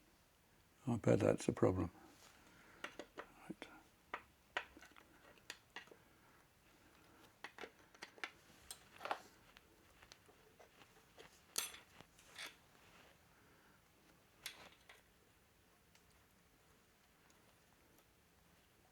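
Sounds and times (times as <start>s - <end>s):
metal tools clicking and clinking: 11.5s - 12.6s.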